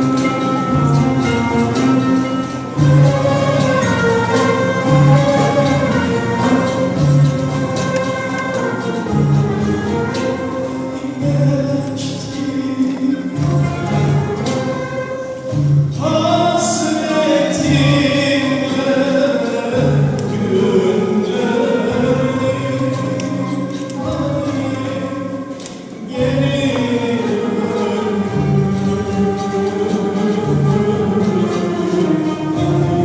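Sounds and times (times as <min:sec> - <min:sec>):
instrumental ensemble: 0:00.0 - 0:33.0
person singing: 0:10.9 - 0:13.8.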